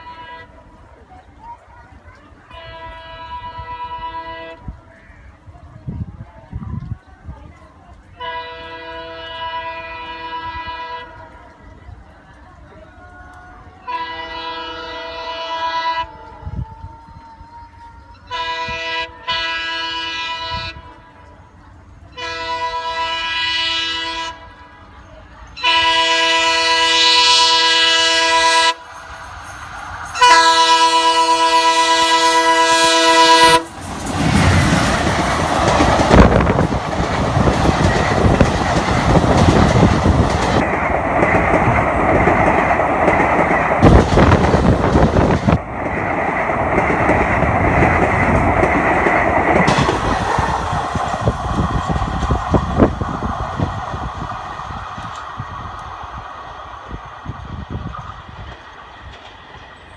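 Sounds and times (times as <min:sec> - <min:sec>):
locomotive air horn blasts: 0:00.0 - 0:00.6, 0:02.5 - 0:04.8, 0:08.2 - 0:11.2, 0:13.8 - 0:16.3, 0:18.2 - 0:21.2, 0:22.2 - 0:24.9, 0:25.6 - 0:28.8, 0:30.2 - 0:33.7
train rushing past: 0:17.8 - 0:59.9
wheels clattering over rail joints: 0:33.6 - 0:53.4.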